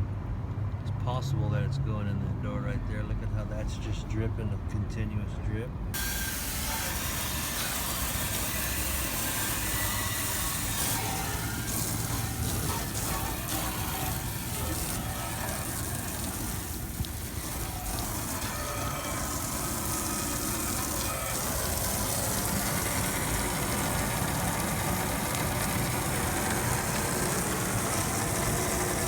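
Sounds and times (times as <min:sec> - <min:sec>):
hvac unit humming: 0:03.0 - 0:29.0
water hissing from hose: 0:06.0 - 0:29.0.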